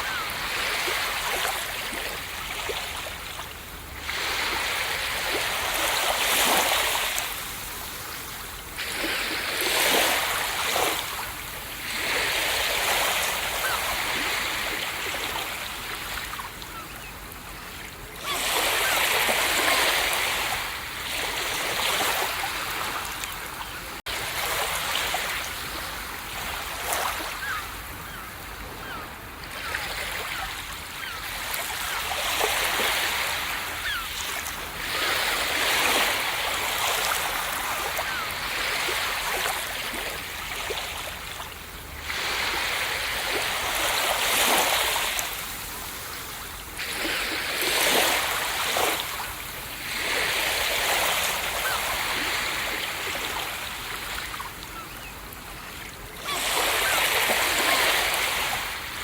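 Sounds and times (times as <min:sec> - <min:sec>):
ocean surf breaking on beach: 0:55.9 - 0:59.0.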